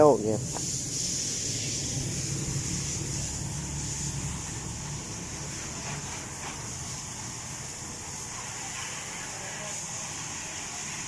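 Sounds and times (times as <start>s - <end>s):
steady high hiss: 0.0s - 11.0s
car engine humming: 0.6s - 8.0s.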